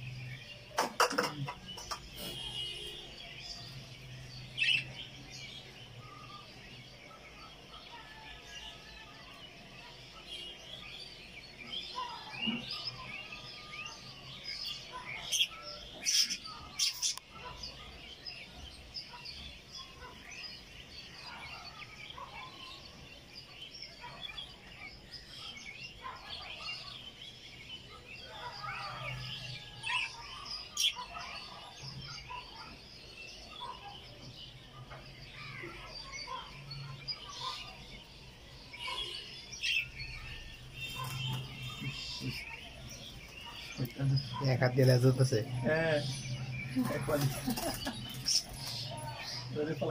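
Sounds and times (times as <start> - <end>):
budgerigars chattering: 0.8 - 2.5.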